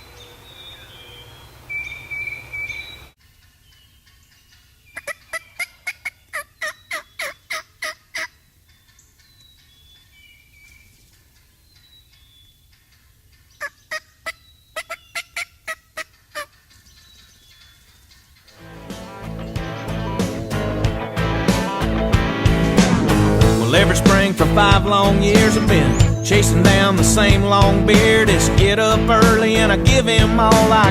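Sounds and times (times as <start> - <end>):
small birds chirping: 0.0 - 21.4, 24.2 - 30.6
wild turkey yelps: 0.4 - 18.5.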